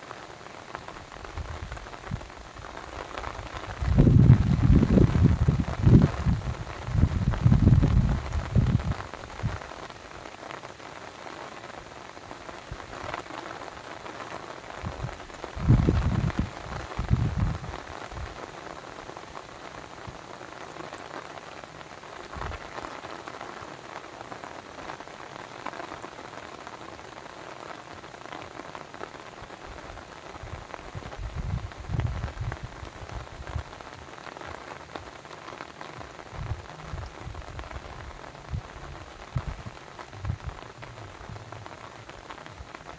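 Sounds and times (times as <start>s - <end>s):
water pattering and splashing: 30.4s - 42.9s
low rumbles: 36.3s - 42.1s.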